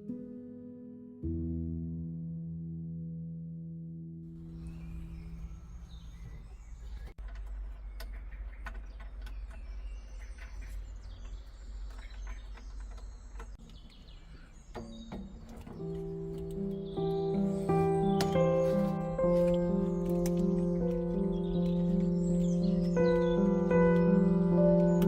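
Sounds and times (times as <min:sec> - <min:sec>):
low outdoor rumble: 0:04.3 - 0:13.6
small birds chirping: 0:04.3 - 0:25.0.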